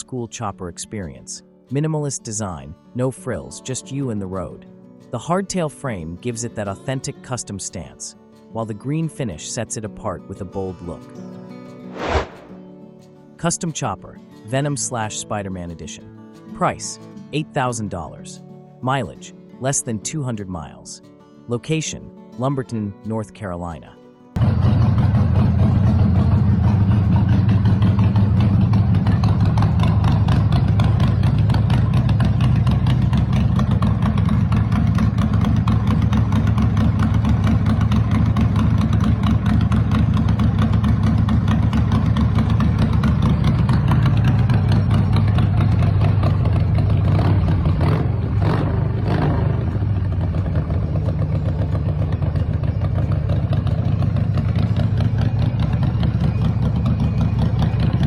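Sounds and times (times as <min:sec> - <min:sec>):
motorcycle engine idling: 0:24.4 - 0:58.0.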